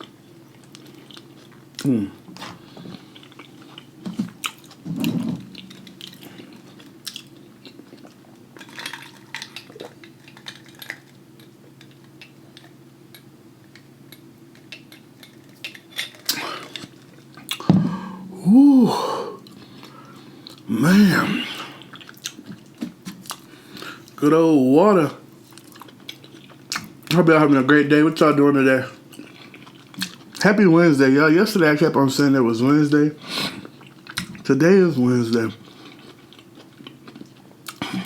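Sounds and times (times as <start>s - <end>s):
chewing: 0.0s - 17.7s, 21.6s - 24.2s, 25.4s - 27.1s, 29.1s - 30.4s, 35.6s - 38.0s
person saying ooh: 17.9s - 19.4s.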